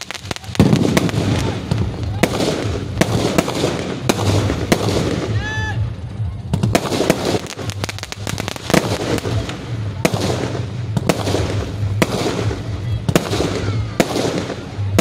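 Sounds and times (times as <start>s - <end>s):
fireworks bangs: 0.0s - 15.0s
fireworks crackling: 0.0s - 15.0s.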